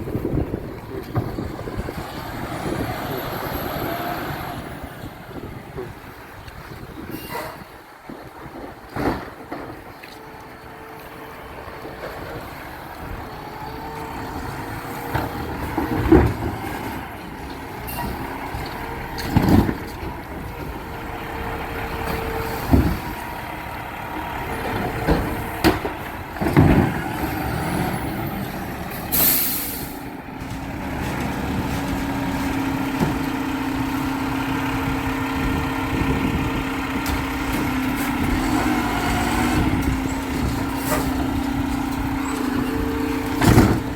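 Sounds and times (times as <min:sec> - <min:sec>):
garbage truck diesel engine: 0:00.0 - 0:43.9
air brake hiss: 0:29.1 - 0:30.1.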